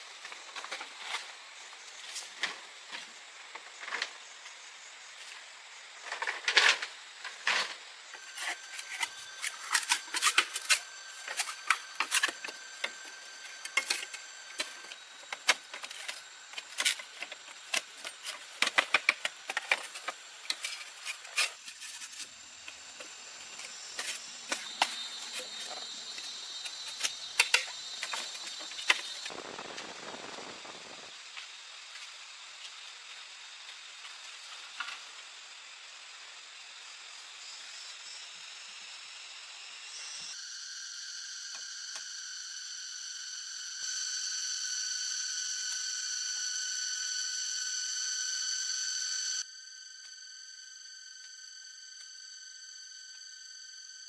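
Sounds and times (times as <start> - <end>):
insects high tones: 0.0 - 54.0
wood and tools clattering: 6.0 - 22.3.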